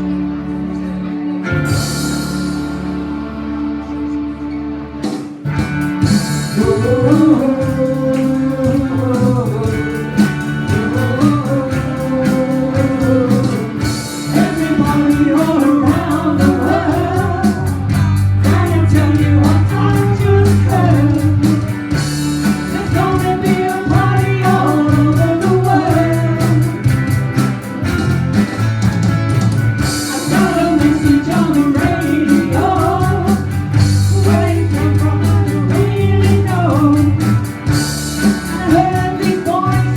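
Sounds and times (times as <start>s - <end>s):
guitar: 0.0s - 39.9s
steady drum beat: 5.1s - 39.9s
person singing: 6.0s - 27.7s, 29.8s - 39.9s.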